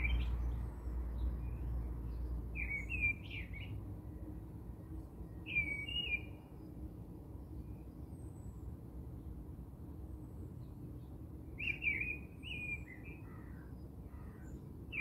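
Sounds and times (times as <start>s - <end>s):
bird chirping: 0.0s - 3.8s, 5.3s - 6.4s, 10.6s - 15.0s.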